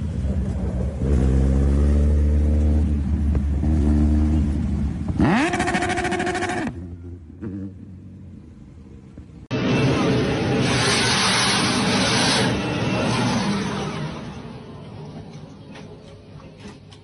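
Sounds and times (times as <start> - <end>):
vehicle engine revving: 0.4 - 8.3.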